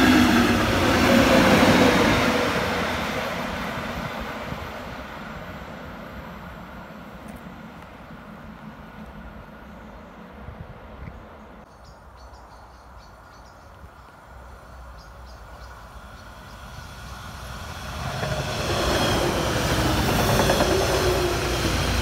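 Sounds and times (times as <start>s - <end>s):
rail noise: 0.0s - 22.0s
diesel train engine rumble: 14.8s - 22.0s.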